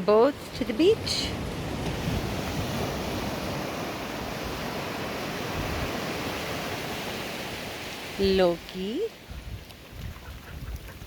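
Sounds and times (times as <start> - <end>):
ocean surf on a beach: 0.0 - 11.0
wind rumbling on microphone: 0.0 - 11.0.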